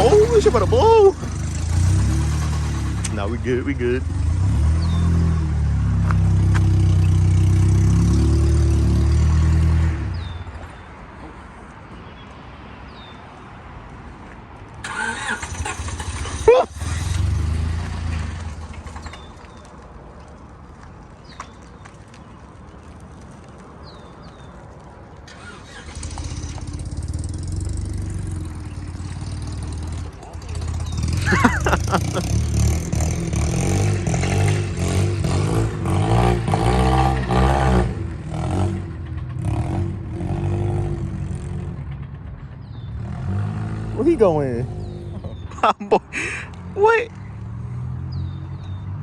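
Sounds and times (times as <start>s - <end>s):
car engine at raised revs: 0.0s - 10.4s, 14.8s - 19.3s, 25.3s - 45.5s.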